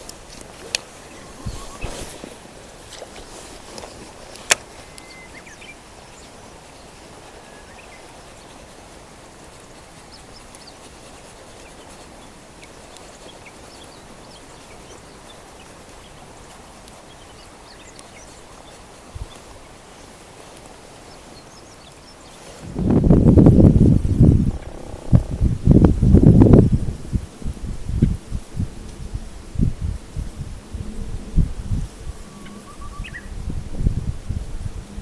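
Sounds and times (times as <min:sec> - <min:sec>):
small birds chirping: 0:00.0 - 0:22.6, 0:31.8 - 0:33.4
outdoor background noise: 0:00.0 - 0:35.0.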